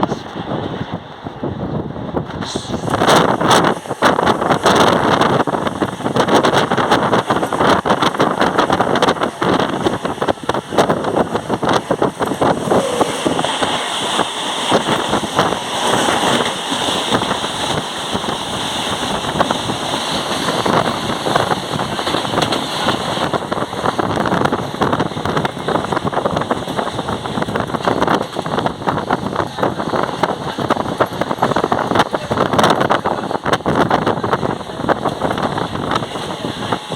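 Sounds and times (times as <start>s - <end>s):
train carriage rattle: 0.0s - 36.9s
wheels clattering on rails: 2.2s - 36.9s.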